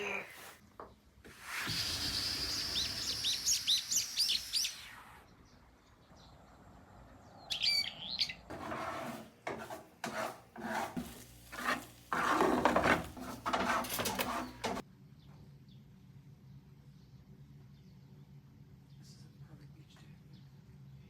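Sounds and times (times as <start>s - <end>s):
small bird chirping: 1.7s - 6.5s, 7.2s - 8.5s
scraping and rustling strokes: 8.5s - 14.8s.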